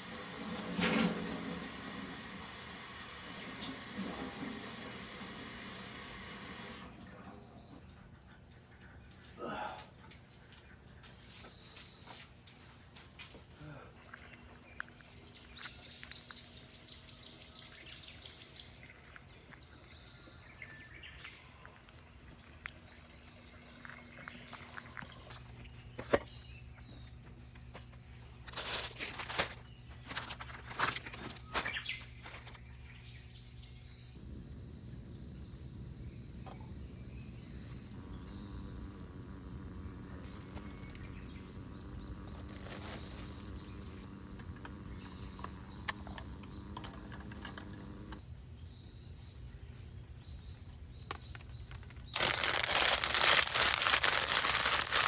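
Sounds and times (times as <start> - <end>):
outdoor background noise: 0.0 - 55.0
small birds chirping: 1.6 - 28.2, 29.5 - 55.0.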